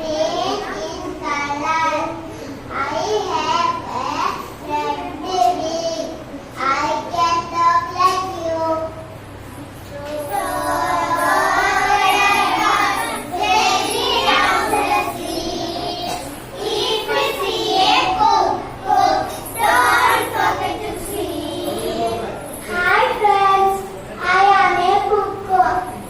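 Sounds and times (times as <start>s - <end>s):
child singing: 9.9s - 26.0s.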